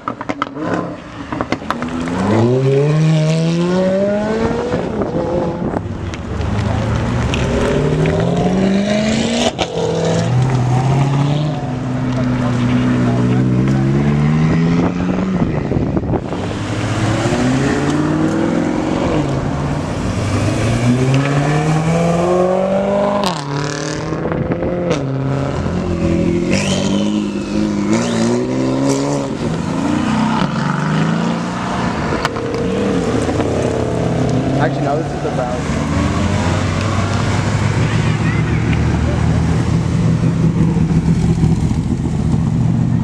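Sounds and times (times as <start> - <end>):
supercar engines revving: 0.0 - 43.0.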